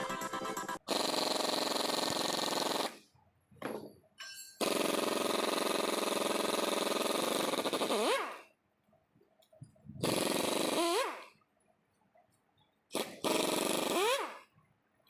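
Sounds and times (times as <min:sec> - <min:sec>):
machine buzzing rapidly: 0:10.0 - 0:11.2, 0:13.0 - 0:14.4.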